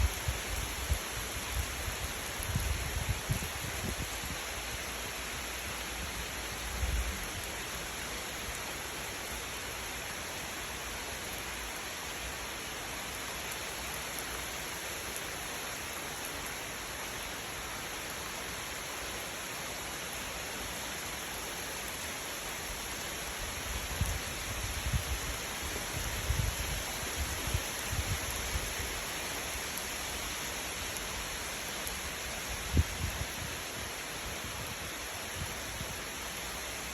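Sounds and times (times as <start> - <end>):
falling rain hiss: 0.0 - 36.9.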